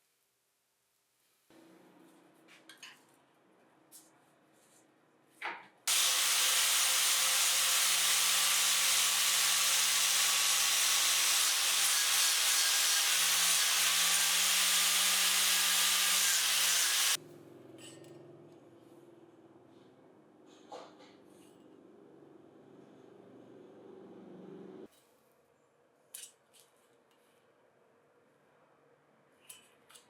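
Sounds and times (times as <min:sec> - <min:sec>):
power tool grinding: 0:05.9 - 0:17.2.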